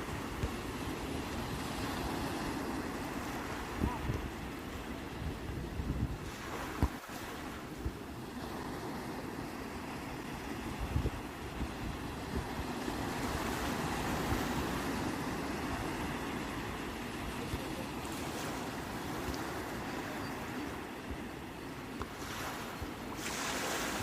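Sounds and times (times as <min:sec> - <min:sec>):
sea waves washing in: 0:00.0 - 0:24.0.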